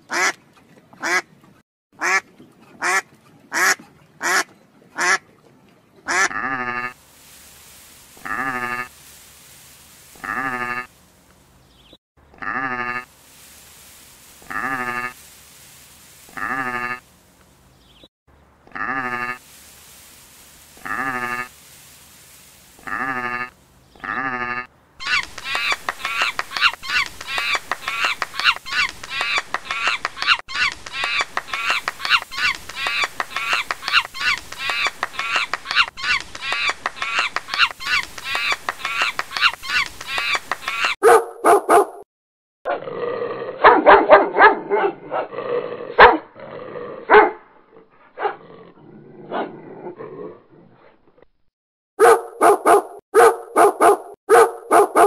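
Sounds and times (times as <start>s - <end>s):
animal bleats: 6.1s - 7.0s, 8.2s - 8.9s, 10.2s - 10.9s, 12.3s - 13.0s, 14.5s - 15.2s, 16.3s - 17.0s, 18.6s - 19.4s, 20.8s - 21.5s, 22.8s - 24.7s
rapid high animal calls: 22.8s - 41.0s
dog barking and yipping: 39.3s - 42.0s, 43.6s - 45.3s, 46.0s - 46.3s, 47.1s - 47.4s, 48.2s - 48.4s, 52.0s - 55.0s.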